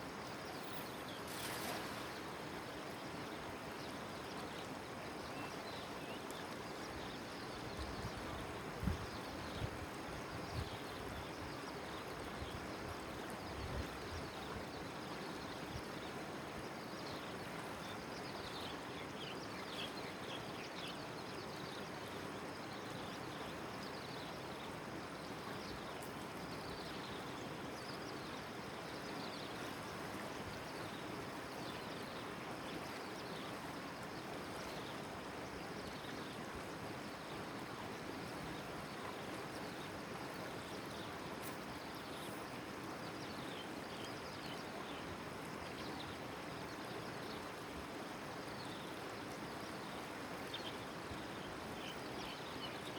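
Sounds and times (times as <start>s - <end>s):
river water rushing: 0.2s - 4.2s.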